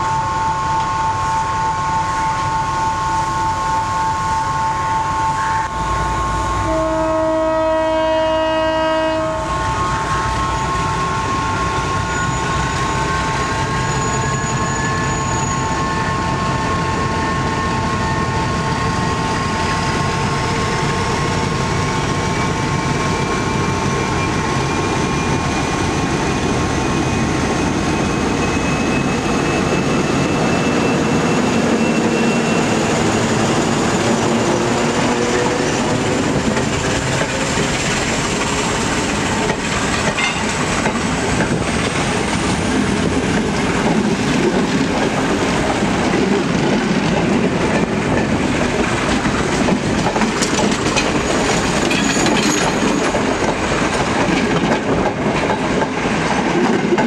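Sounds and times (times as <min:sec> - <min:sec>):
diesel locomotive engine whining: 0:00.0 - 0:57.0
wheels clattering over rail joints: 0:36.3 - 0:42.0, 0:43.1 - 0:57.0.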